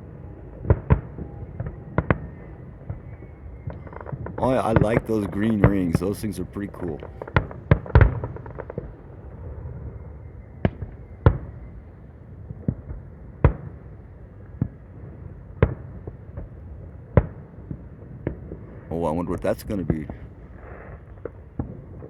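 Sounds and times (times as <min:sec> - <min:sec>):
fireworks bangs: 0:00.6 - 0:09.9, 0:17.2 - 0:22.0.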